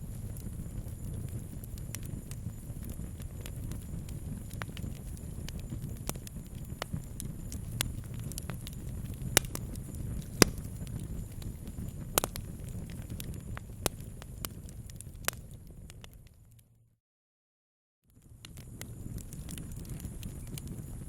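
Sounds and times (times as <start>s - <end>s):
campfire crackling: 0.0s - 16.6s, 18.2s - 21.0s
fire popping: 0.0s - 16.6s, 18.2s - 21.0s.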